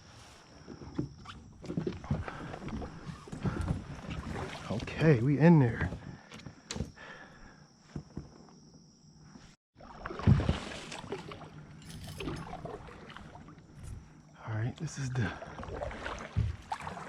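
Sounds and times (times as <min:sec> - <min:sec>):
kayak hull scraping through brush: 0:00.0 - 0:06.2
water noise: 0:00.0 - 0:06.3, 0:09.8 - 0:17.0.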